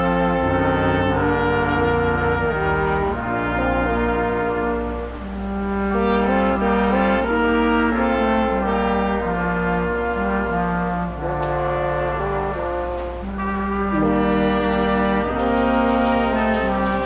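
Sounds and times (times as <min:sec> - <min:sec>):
brass ensemble playing chords: 0:00.0 - 0:17.0.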